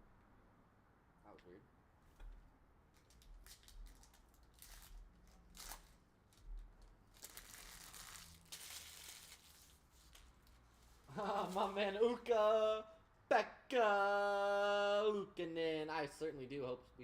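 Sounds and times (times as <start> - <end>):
foil wrapper tearing and crinkling: 3.0 - 10.2.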